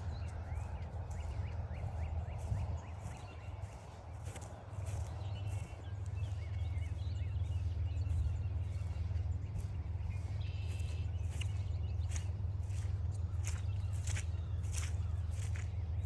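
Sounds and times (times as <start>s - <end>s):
birds chirping and whistling: 0.0s - 16.0s
steady low rumble: 0.0s - 16.0s.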